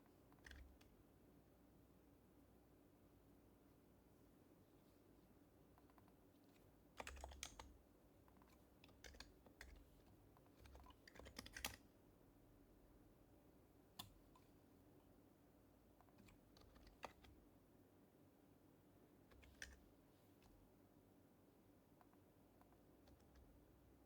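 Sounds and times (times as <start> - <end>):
soft keyboard typing: 0.0 - 1.0, 5.6 - 11.9, 13.9 - 14.6, 15.9 - 17.4, 19.2 - 20.6, 21.9 - 24.0.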